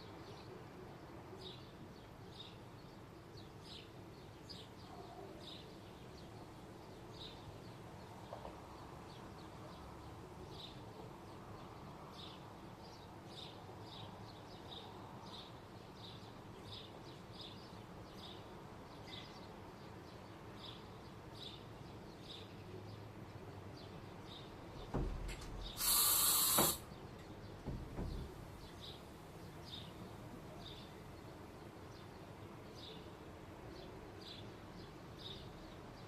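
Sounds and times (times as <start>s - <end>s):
small bird chirping: 25.6s - 26.9s.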